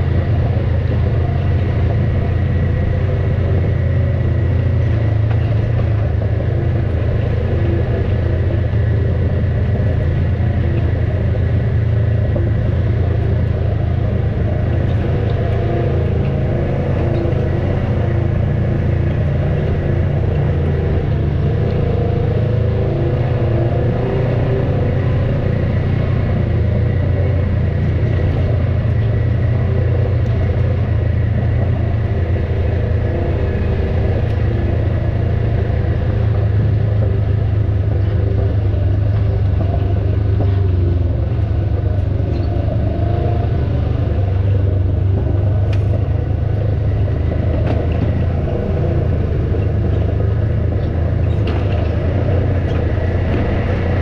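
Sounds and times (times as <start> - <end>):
engine running at low revs: 0.0 - 54.0.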